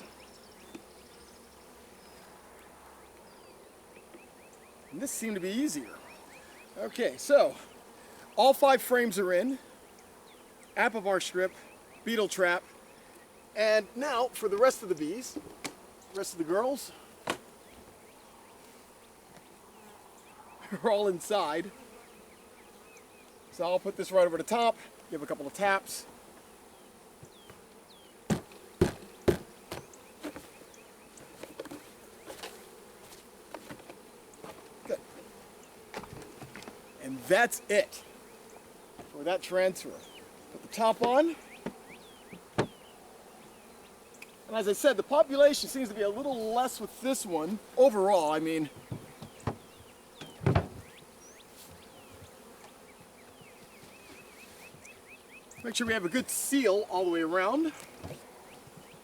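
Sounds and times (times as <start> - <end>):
honeybees buzzing: 0.0 - 59.0
hive handling sounds: 10.8 - 59.0
taps on hive: 17.2 - 17.5, 27.2 - 35.3, 40.5 - 42.9, 48.7 - 51.1.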